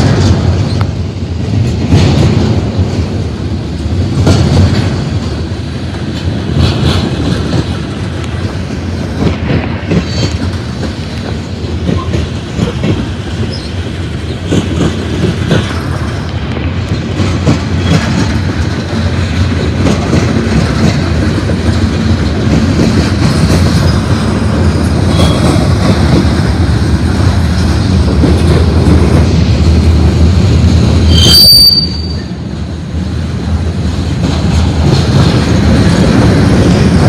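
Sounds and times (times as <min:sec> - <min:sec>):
train wheels clattering over rail: 0:00.0 - 0:37.0
high wheel squeals: 0:31.1 - 0:32.4.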